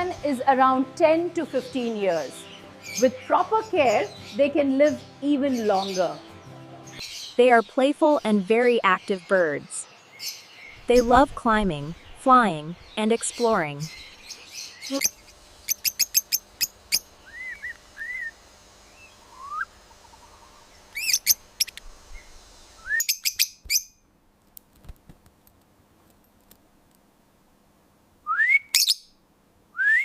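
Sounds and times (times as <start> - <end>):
lovebirds chirping: 0.0 - 22.4, 28.8 - 29.1
bird whistles: 14.9 - 18.4, 19.0 - 19.8, 22.8 - 23.9, 28.3 - 29.0, 29.8 - 30.0.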